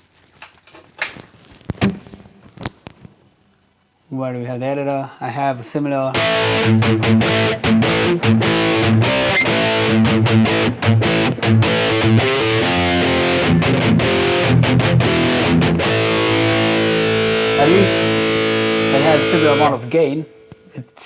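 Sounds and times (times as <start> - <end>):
distorted electric guitar chugging riff: 6.1 - 20.6.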